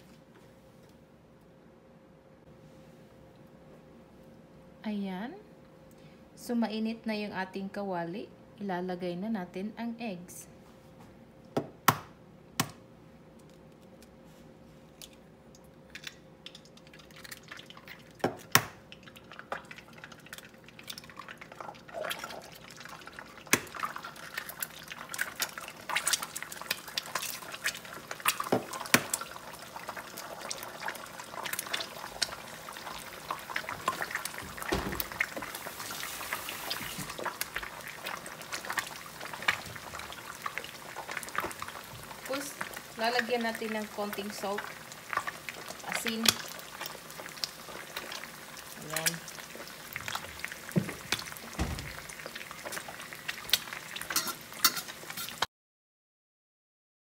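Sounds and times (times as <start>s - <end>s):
eggs cracking: 14.9s - 35.8s
oil sizzling and popping: 14.9s - 55.5s.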